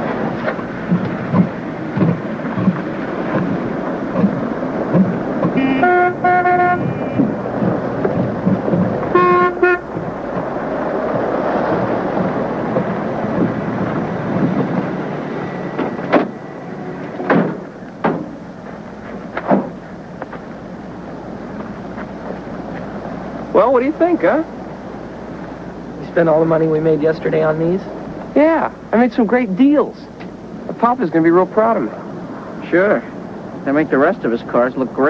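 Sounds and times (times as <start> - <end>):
vehicle traffic: 0.0 - 35.0
sharp knocks: 0.4 - 10.5, 17.2 - 18.4, 19.0 - 20.4
car horn honking: 5.4 - 7.4, 9.1 - 10.0.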